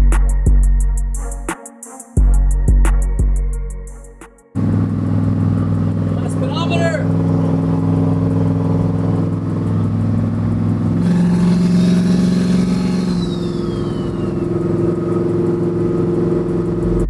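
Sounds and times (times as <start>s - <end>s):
truck engine running: 4.5s - 17.0s
faint high whistle: 12.8s - 14.6s.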